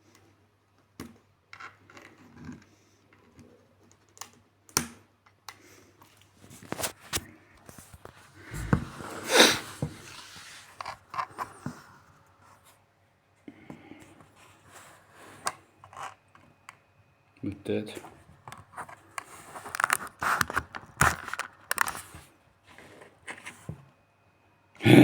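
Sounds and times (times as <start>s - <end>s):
rustling scrape: 6.4s - 11.4s.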